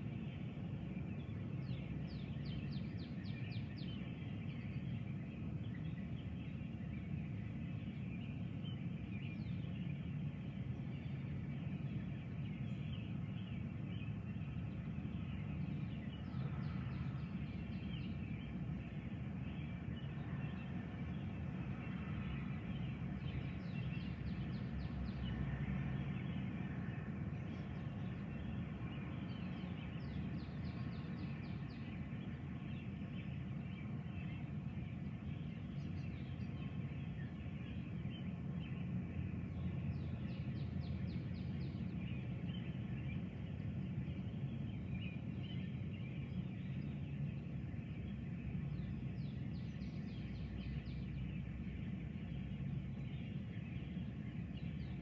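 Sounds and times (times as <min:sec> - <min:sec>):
low background rumble: 0:00.0 - 0:55.0.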